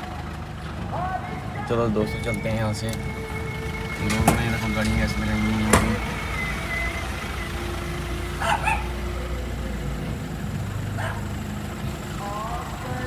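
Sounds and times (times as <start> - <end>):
vehicle engine running: 0.0 - 13.0
dog barking: 8.1 - 9.4, 10.8 - 11.5.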